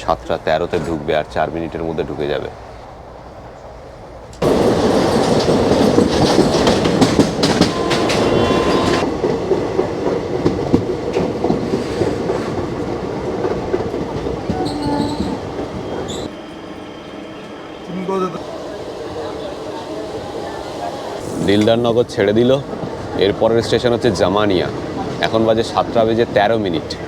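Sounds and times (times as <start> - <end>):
train wheels clickety-clack: 4.3 - 16.3
high wheel squeal: 4.4 - 9.1, 14.5 - 21.6.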